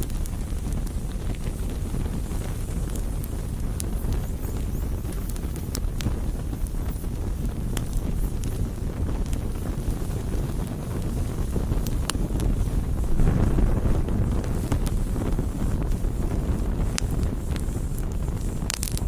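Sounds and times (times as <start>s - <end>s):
campfire rumbling: 0.0s - 19.0s
wood crackling and popping: 0.0s - 19.0s.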